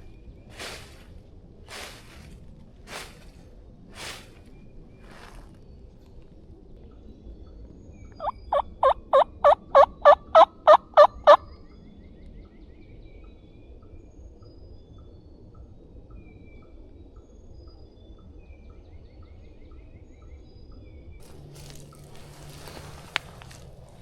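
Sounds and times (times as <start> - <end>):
turkey hen yelps: 8.2 - 11.4.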